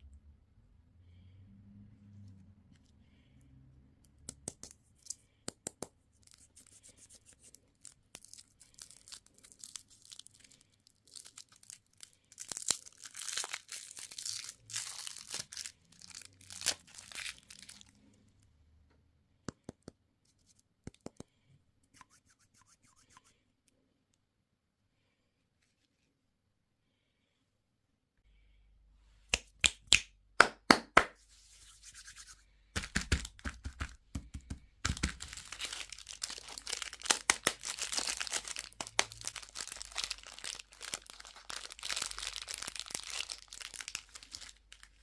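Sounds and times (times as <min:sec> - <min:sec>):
candy wrapper tearing and crinkling: 0:07.7 - 0:18.0, 0:34.8 - 0:45.0.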